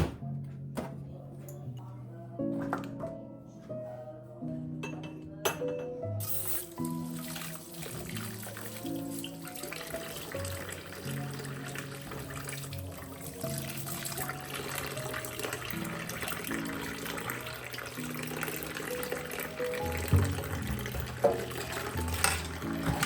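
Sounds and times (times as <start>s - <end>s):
soft background music: 0.0s - 23.0s
tap water running into sink: 6.3s - 23.0s.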